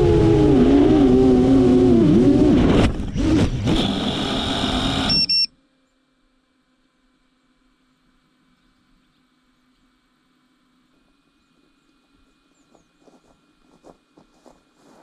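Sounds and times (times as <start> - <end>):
short beep: 5.1 - 5.5.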